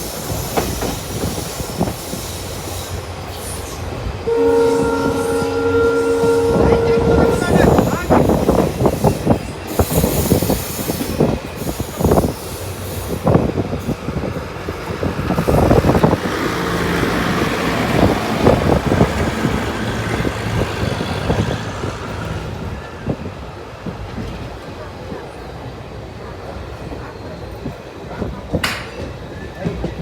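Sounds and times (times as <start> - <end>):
train wheels clattering: 0.0 - 22.7.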